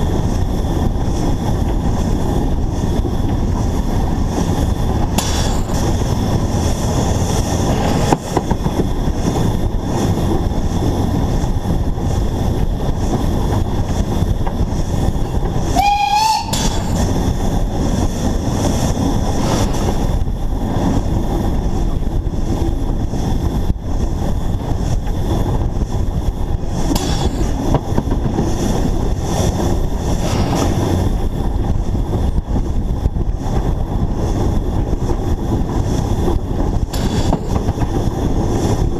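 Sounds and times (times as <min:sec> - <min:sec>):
steam locomotive running: 0:00.0 - 0:38.9
steam whistle blast: 0:15.7 - 0:17.0.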